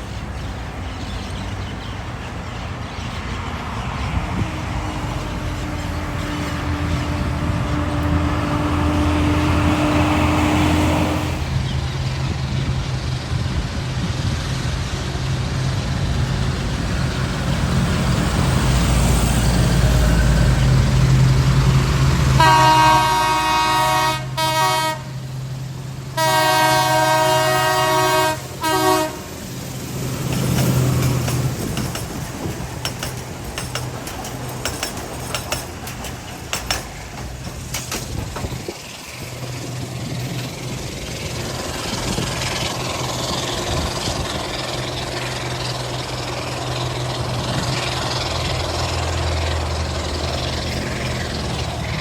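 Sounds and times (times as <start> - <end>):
diesel train engine rumbling: 0.0 - 52.0
train horn blasts: 4.3 - 11.6, 22.2 - 25.4, 26.1 - 29.4.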